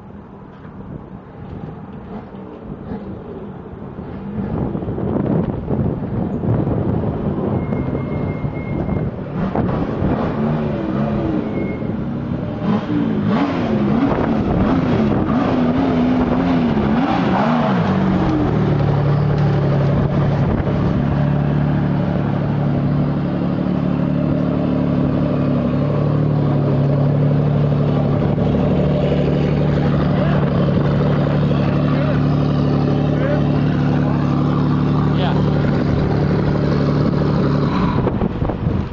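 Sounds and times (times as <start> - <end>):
race engine revving: 8.9 - 38.9.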